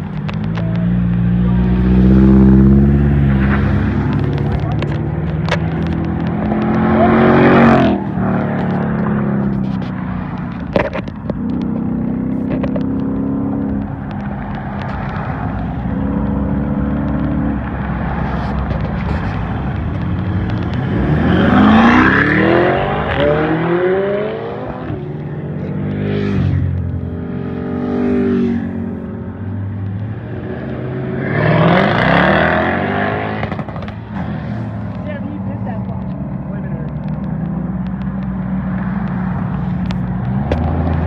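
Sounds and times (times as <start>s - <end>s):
car engines running: 0.0s - 41.0s
car accelerating hard: 0.5s - 9.6s, 11.4s - 28.9s, 30.2s - 34.9s
engine revving: 0.6s - 9.6s, 18.6s - 29.0s, 30.2s - 35.3s.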